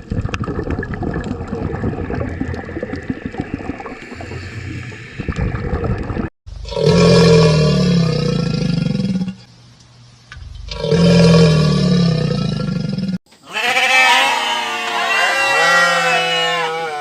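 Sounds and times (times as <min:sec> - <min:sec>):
sheep bleating: 0:13.4 - 0:17.0.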